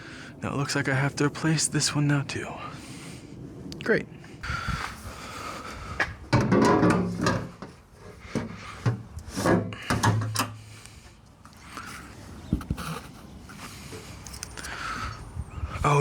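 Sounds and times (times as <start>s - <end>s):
hardware scrapes and clunks: 6.3s - 10.6s.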